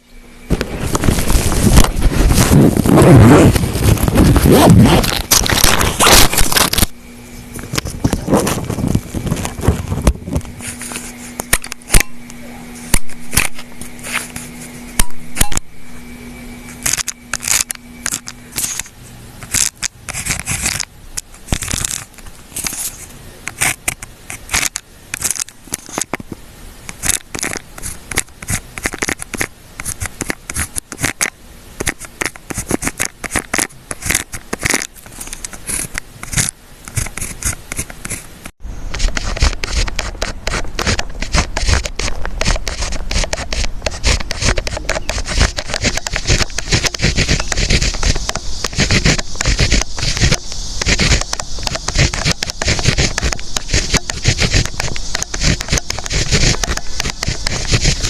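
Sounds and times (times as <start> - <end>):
pen scratching on paper: 16.7 - 26.2, 27.0 - 38.3, 39.0 - 58.0.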